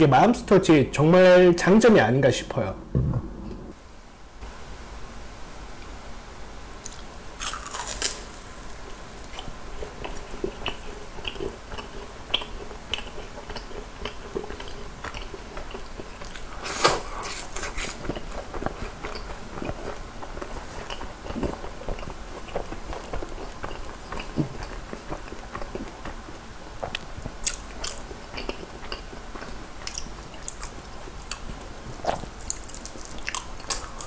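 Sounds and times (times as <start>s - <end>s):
crunchy chewing: 6.8s - 34.0s.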